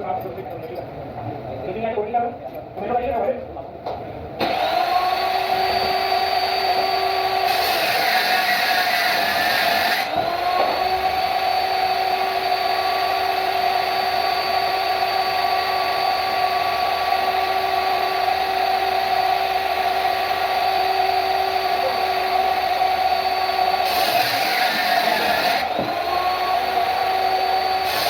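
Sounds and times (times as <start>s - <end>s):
power tool motor whine: 4.4s - 28.0s.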